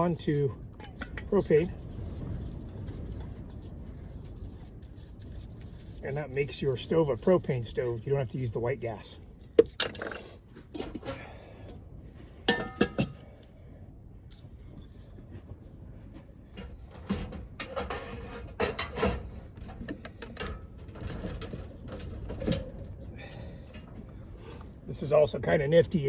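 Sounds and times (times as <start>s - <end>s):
low rumble: 0.0s - 9.6s
metal clank with ring: 12.5s - 13.1s
metal cookware clinking: 12.5s - 13.1s.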